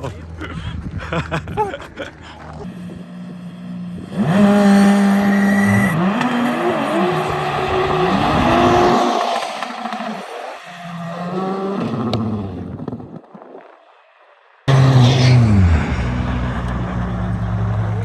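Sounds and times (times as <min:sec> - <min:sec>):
car engine revving: 0:02.3 - 0:12.7, 0:14.7 - 0:18.0.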